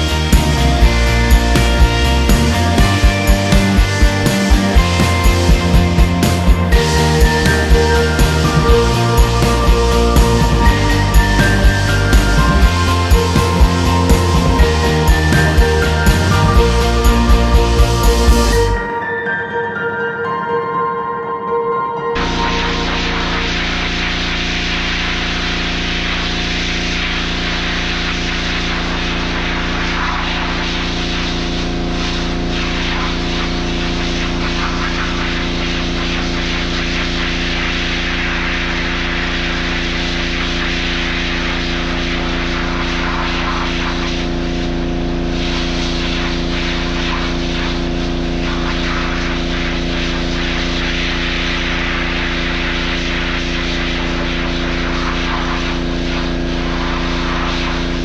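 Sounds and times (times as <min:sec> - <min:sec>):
broad hiss: 0:00.0 - 0:19.0.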